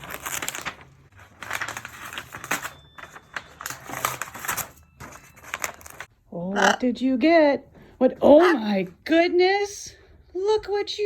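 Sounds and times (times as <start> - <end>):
gift packaging being torn open: 0.0 - 6.1.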